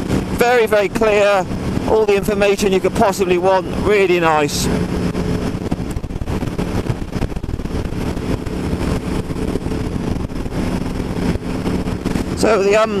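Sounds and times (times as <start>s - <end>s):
motorcycle engine running: 0.0s - 13.0s
wind noise: 0.0s - 13.0s.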